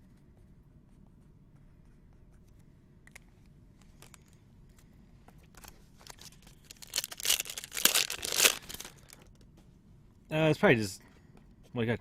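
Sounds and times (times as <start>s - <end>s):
foil wrapper tearing and crinkling: 6.0s - 9.2s.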